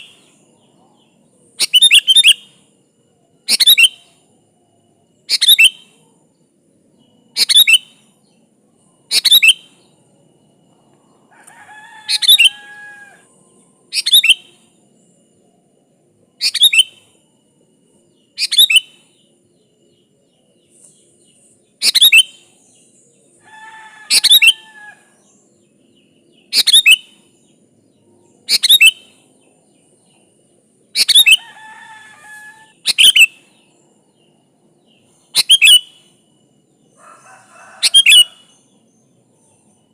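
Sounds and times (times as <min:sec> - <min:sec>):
bulbul calling: 0:01.6 - 0:02.5, 0:03.5 - 0:04.1, 0:07.4 - 0:07.9, 0:09.1 - 0:09.7, 0:16.4 - 0:17.1, 0:21.8 - 0:22.5, 0:26.4 - 0:27.2, 0:28.4 - 0:29.2, 0:30.9 - 0:31.6, 0:32.7 - 0:33.6, 0:35.3 - 0:36.0, 0:37.8 - 0:38.5.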